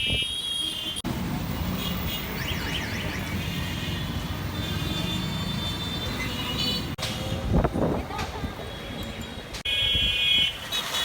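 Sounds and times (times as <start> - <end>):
road vehicle rumble: 1.0 - 9.8.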